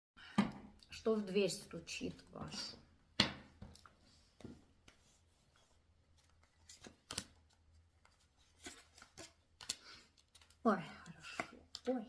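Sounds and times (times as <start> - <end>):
cards snapping and slapping: 6.3 - 7.6, 8.6 - 10.6.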